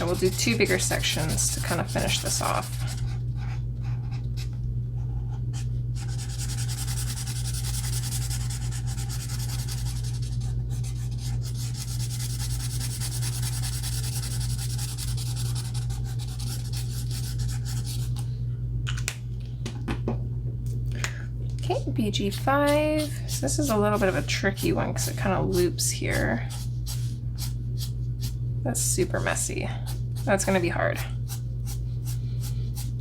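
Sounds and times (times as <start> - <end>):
marker rubbing on paper: 0.0 - 3.1
steady low hum: 0.0 - 33.0.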